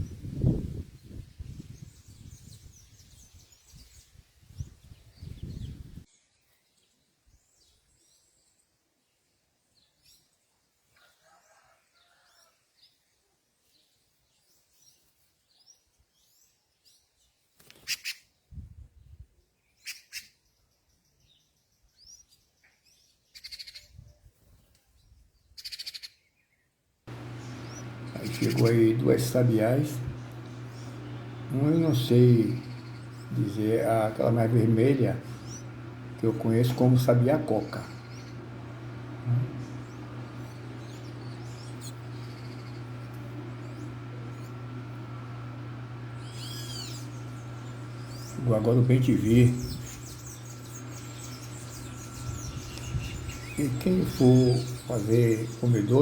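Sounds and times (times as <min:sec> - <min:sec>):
birds chirping: 0:00.0 - 0:06.1, 0:27.1 - 0:56.0.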